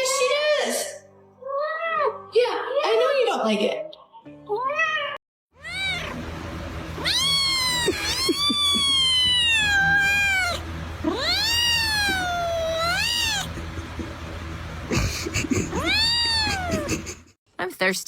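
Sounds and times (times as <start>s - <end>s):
cat meowing and yowling: 1.4s - 2.2s, 4.5s - 6.2s, 7.0s - 13.5s, 15.7s - 16.9s
steady low hum: 5.6s - 17.3s.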